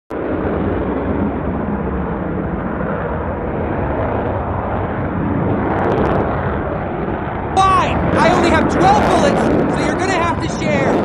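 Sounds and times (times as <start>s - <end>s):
jet engine rumble: 0.1s - 11.0s.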